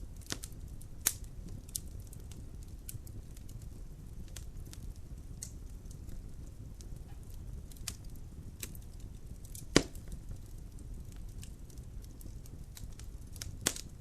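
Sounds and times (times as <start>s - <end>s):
fire crackling: 0.0s - 14.0s
low rumble of flames: 0.0s - 14.0s
loud pop from fire: 0.1s - 3.6s, 6.9s - 14.0s.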